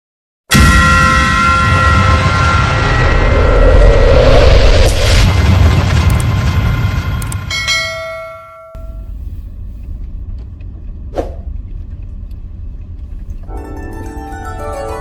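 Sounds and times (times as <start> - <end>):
low outdoor rumble with hiss: 8.9 - 13.5
plucked harpsichord-like music: 13.5 - 15.0
ringing chord: 13.5 - 15.0.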